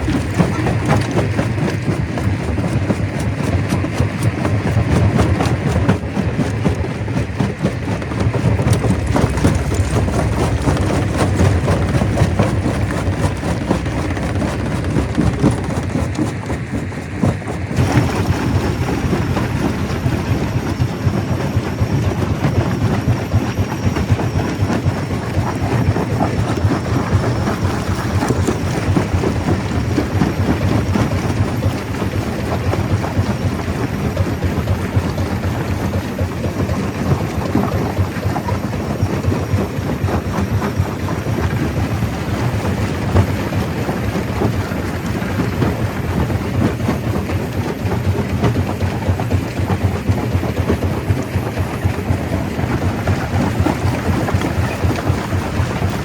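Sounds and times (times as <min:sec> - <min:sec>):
low mechanical rumble: 0:00.0 - 0:02.0, 0:04.9 - 0:48.5
rocks clattering and grinding: 0:00.0 - 0:22.6.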